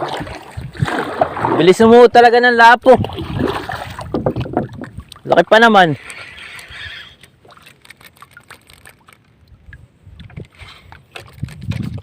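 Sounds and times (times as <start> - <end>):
water lapping against hull: 0.0 - 12.0.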